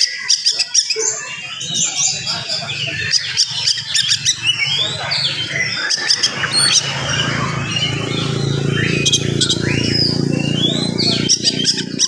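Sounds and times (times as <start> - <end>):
bird singing whistled phrases: 3.4 - 12.0.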